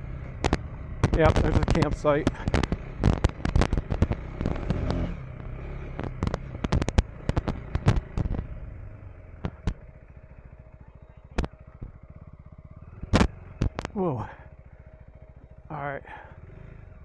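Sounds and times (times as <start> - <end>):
motorcycle engine running: 0.0 - 17.0
sharp cracks and knocks: 0.2 - 8.6, 9.4 - 9.9, 11.4 - 12.0, 13.0 - 14.0.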